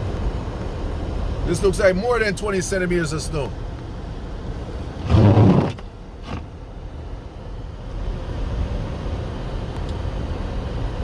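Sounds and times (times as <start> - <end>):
motor vehicle rumble: 0.0 - 11.0
faint click: 9.7 - 10.0.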